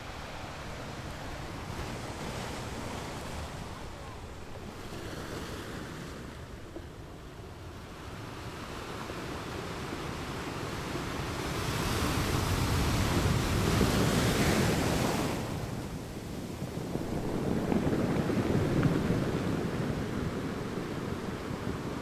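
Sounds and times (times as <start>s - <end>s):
wind on microphone: 0.0s - 22.0s
waves lapping: 11.4s - 22.0s.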